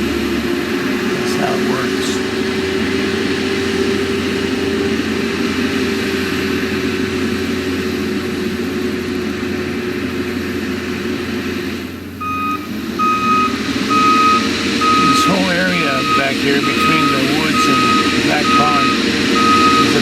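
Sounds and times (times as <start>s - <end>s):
skid steer engine running: 0.0s - 20.0s
backup alarm beeping: 12.2s - 20.0s.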